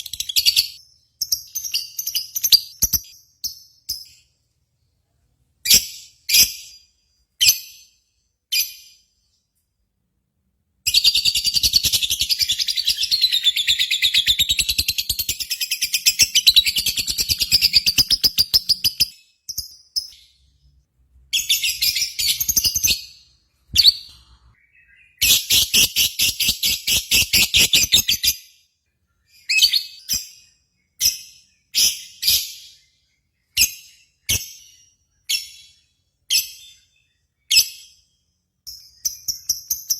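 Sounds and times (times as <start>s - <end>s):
lovebird chirps: 0.0s - 4.3s, 10.8s - 28.6s, 29.2s - 39.9s.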